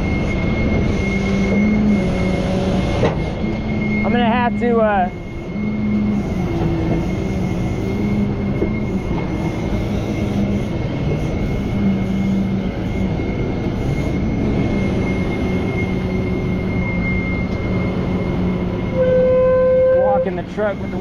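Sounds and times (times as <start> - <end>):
truck diesel engine whining: 0.0 - 21.0.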